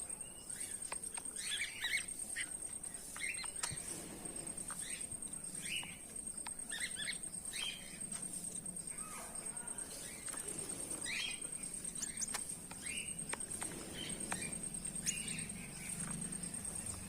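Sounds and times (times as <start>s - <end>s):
goldfinch chirping and twittering: 0.3s - 6.0s, 9.9s - 17.0s
faint clicks: 0.8s - 1.4s, 5.8s - 6.6s, 12.0s - 14.6s.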